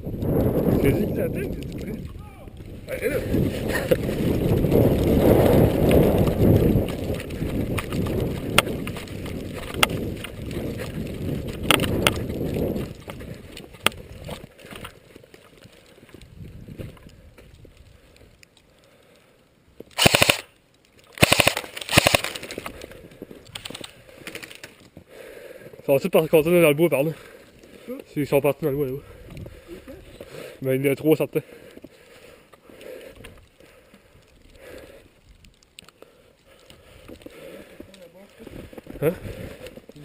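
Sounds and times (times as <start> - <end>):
low rumbling noise: 0.0 - 13.5
sharp clicks: 19.8 - 24.8
airsoft gun automatic fire: 20.0 - 20.5, 21.2 - 22.5.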